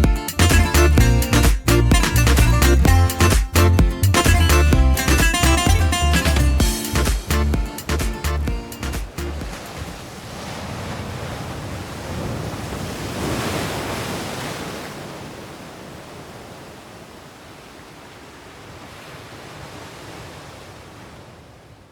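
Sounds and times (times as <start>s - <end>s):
sea waves washing: 5.0s - 21.7s.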